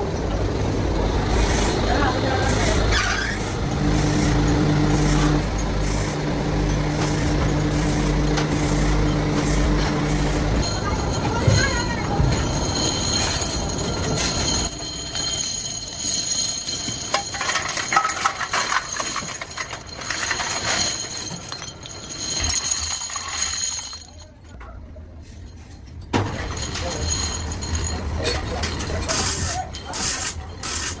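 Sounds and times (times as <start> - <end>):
factory machinery whining: 0.0 - 23.4
metal parts clinking: 2.5 - 24.3, 25.6 - 31.0.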